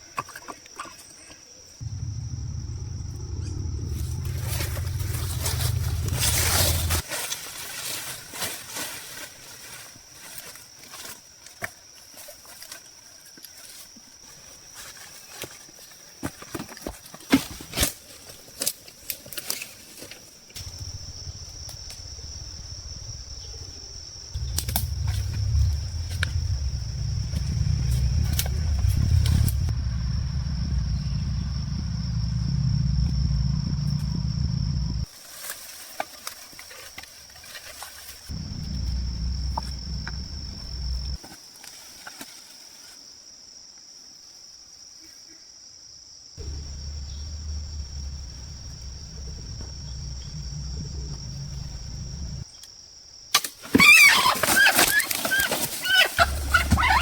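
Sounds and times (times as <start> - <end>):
insects buzzing: 0.0 - 16.3, 17.4 - 57.0
loud low rumble: 1.8 - 7.0, 20.6 - 35.1, 38.3 - 41.2, 46.4 - 52.4.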